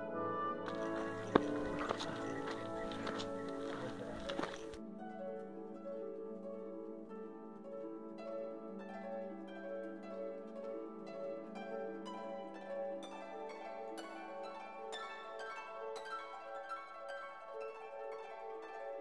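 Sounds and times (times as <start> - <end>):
plucked harp-like music: 0.0 - 19.0.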